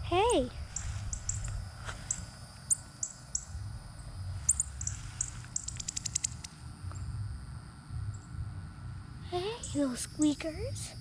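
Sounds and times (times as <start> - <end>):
fast run of bird ticks: 0.8 - 3.5, 4.5 - 6.6
baby birds squeaky chips: 4.5 - 6.5.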